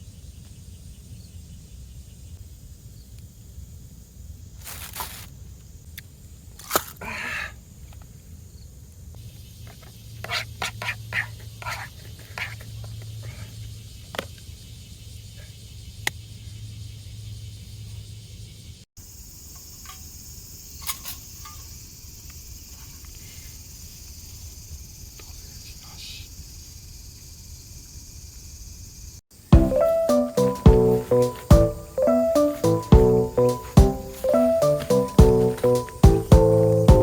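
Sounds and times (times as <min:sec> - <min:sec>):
insect drone: 0:13.2 - 0:37.0.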